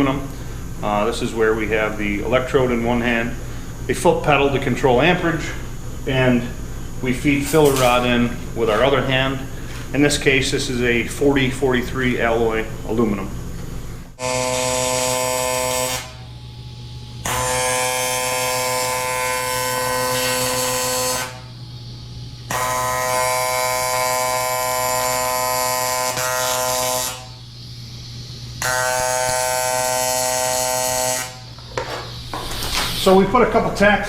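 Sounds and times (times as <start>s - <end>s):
low machine hum: 0.0s - 34.0s
welder arc buzzing: 0.0s - 34.0s.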